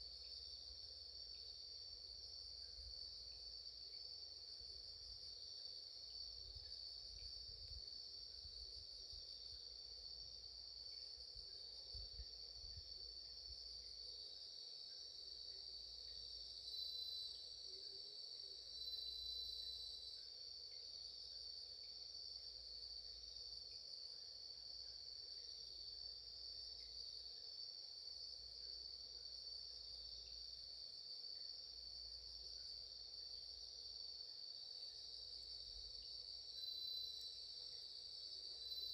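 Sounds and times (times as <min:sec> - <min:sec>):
crickets trilling: 0:00.0 - 0:38.9
nearer insect call: 0:00.0 - 0:38.9.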